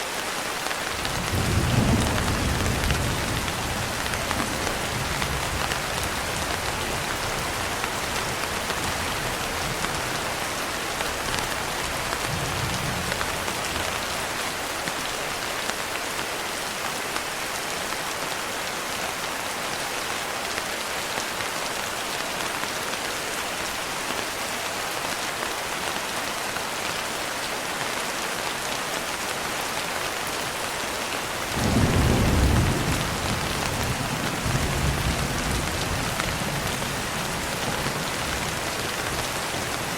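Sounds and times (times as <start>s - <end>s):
steady rain: 0.0s - 39.9s
thunder rumbling: 1.0s - 6.7s, 31.5s - 38.6s.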